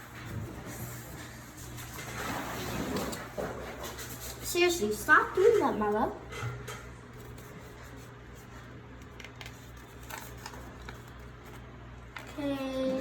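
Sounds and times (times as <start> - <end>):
steady low hum: 3.3 - 13.0.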